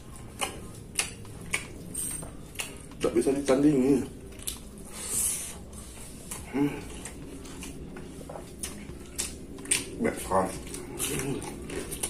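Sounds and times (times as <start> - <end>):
man chewing food: 0.0 - 12.0
breath hiss: 4.9 - 5.8.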